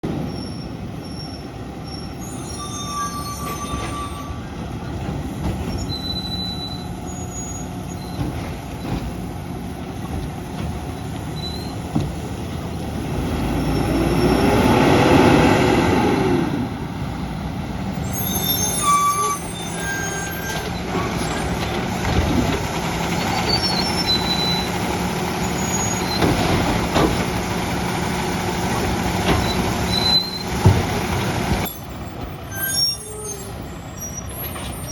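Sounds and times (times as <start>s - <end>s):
short high squeaks: 0.3s - 4.5s, 5.7s - 8.3s, 11.3s - 11.9s, 18.1s - 21.7s, 23.2s - 24.8s, 25.4s - 26.4s, 29.3s - 30.6s, 31.6s - 34.9s
garbage truck diesel engine revving: 6.5s - 18.1s, 20.1s - 32.0s.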